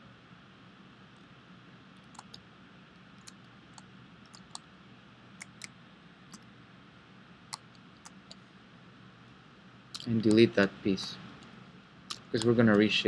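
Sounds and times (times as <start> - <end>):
low room hum: 0.0 - 13.0
mouse and keyboard clicks: 2.1 - 2.4.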